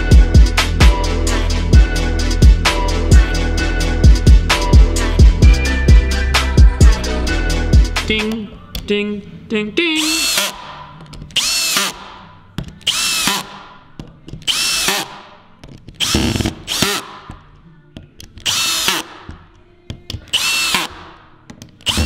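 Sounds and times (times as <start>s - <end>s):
cordless drill driving screws: 10.0s - 10.7s, 11.4s - 12.1s, 12.8s - 13.6s, 14.4s - 15.2s, 16.0s - 17.2s, 18.4s - 19.1s, 20.3s - 21.0s, 21.8s - 22.0s.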